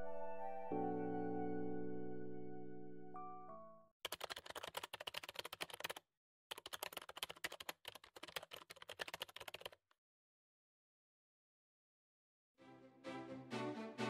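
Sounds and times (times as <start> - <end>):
keyboard typing clicks: 4.1 - 9.8.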